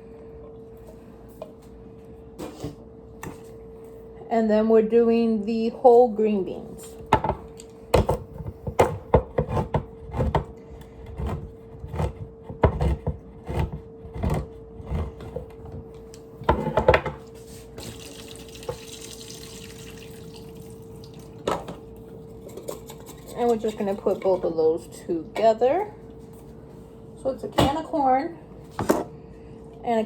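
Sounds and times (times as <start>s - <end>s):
tap water running: 17.8s - 21.6s.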